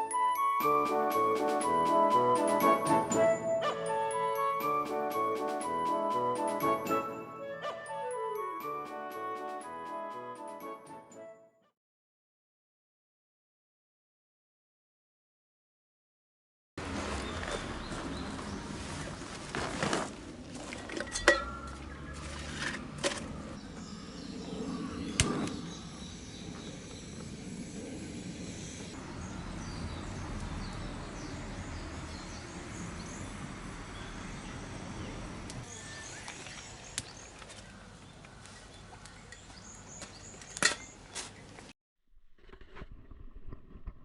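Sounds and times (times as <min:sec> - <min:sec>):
outdoor background noise: 0:16.8 - 0:41.7.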